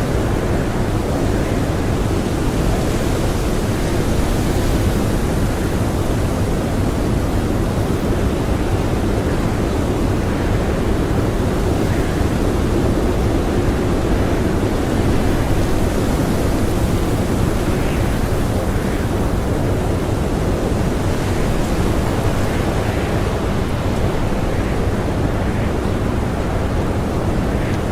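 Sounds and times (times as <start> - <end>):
blizzard wind blowing hard: 0.0 - 27.9.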